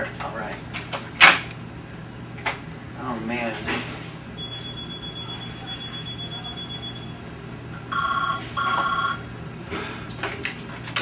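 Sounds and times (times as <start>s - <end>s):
telephone ringing electronically: 4.4s - 7.2s, 7.9s - 9.3s
steady high-pitched tone: 7.9s - 9.2s.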